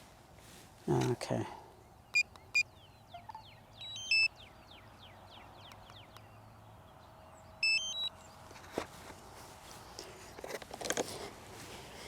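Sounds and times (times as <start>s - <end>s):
electronic beep melody: 2.2s - 4.3s, 7.6s - 8.1s.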